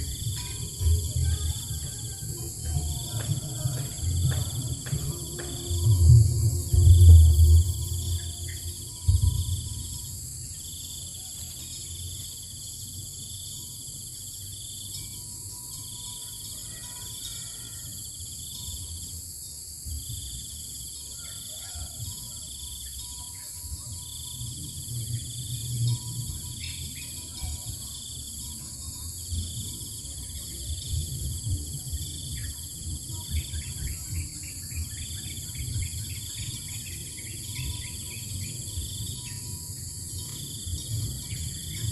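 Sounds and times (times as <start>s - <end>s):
low rumble: 0.0s - 10.4s
high-pitched insect buzz: 0.0s - 21.1s
insect trilling chirp: 0.0s - 41.9s.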